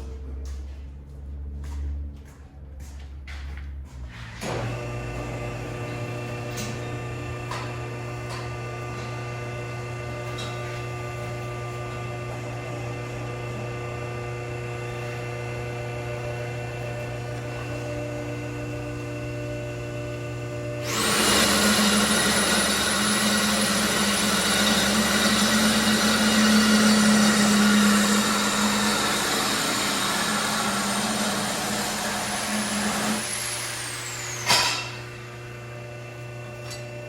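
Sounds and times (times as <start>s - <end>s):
air tool whine and hiss: 20.8s - 35.4s.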